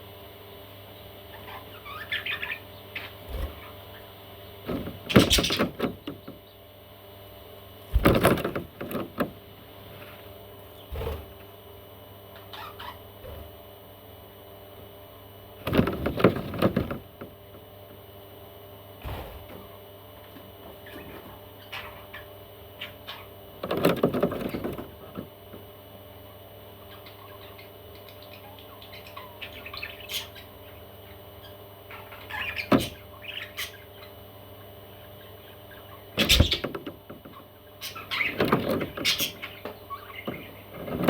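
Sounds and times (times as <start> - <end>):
steady low hum: 0.0 - 41.0
baby parrots chirping: 1.3 - 4.1, 5.1 - 5.7, 12.4 - 13.1, 26.8 - 36.7, 37.3 - 40.6.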